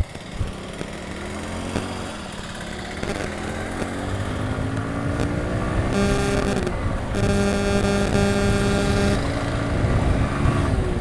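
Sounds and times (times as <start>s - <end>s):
motorcycle engine accelerating: 0.0s - 11.0s
horn tone: 5.8s - 9.4s.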